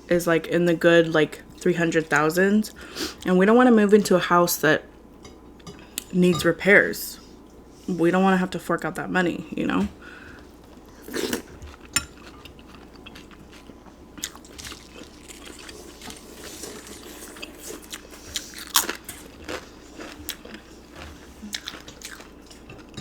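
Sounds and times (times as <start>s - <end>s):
close chewing and mouth sounds: 10.4s - 23.0s.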